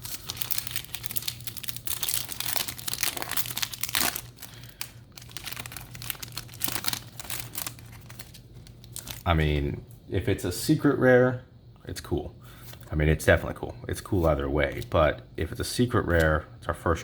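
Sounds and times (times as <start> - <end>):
foil wrapper crinkling: 0.0 - 9.3
trading cards being handled: 0.0 - 9.3.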